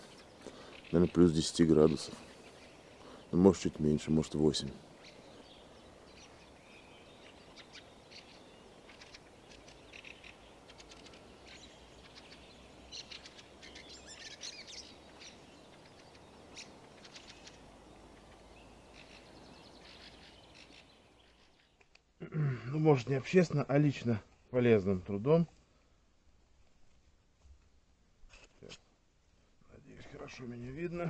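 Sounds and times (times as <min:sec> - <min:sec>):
songbirds chirping: 0:00.0 - 0:22.1
faint background noise: 0:00.0 - 0:31.0.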